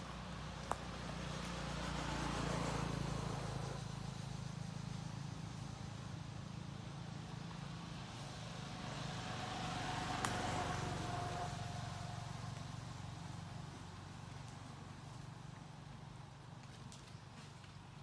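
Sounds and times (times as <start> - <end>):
motor vehicle passing: 0.0 - 4.4, 7.2 - 15.2
low traffic hum: 0.0 - 18.0.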